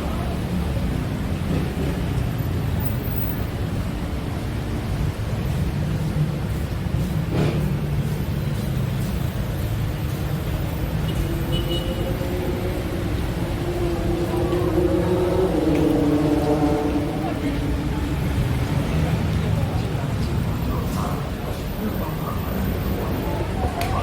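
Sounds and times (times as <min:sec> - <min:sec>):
road traffic rumble: 0:00.0 - 0:24.0
low droning engine: 0:11.4 - 0:19.8.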